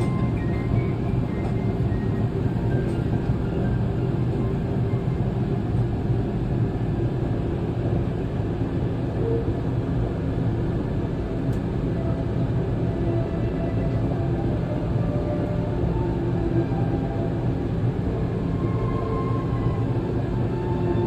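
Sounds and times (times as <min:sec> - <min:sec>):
ferris wheel gondola drone: 0:00.0 - 0:07.0, 0:10.2 - 0:21.0.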